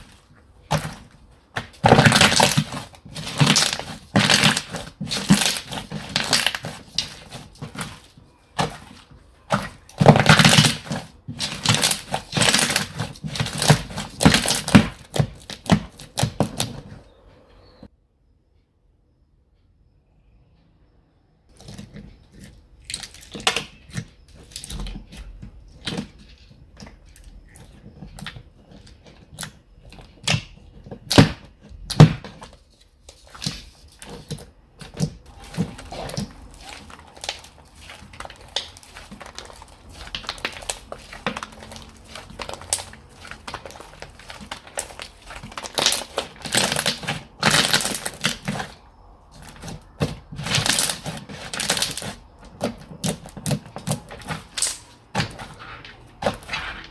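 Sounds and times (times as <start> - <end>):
slime clicking and squelching: 0.0 - 16.8, 21.6 - 32.5, 33.1 - 56.9
slime stretching crackles: 35.2 - 56.9.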